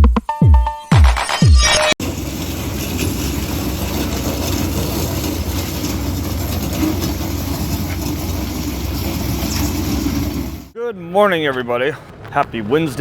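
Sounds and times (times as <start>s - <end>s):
diesel engine idling: 2.0s - 10.8s.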